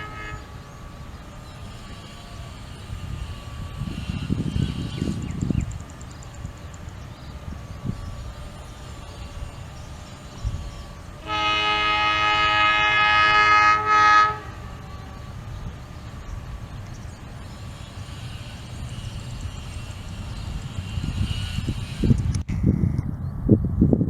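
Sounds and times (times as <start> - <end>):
train horn blasts: 0.0 - 5.4, 7.8 - 16.1.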